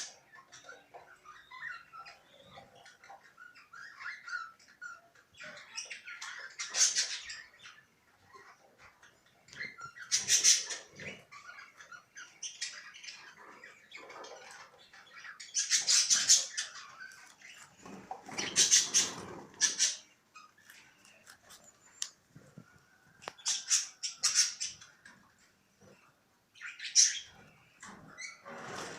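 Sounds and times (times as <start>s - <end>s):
budgerigars chattering: 0.0s - 20.9s, 23.3s - 25.2s, 26.6s - 28.4s.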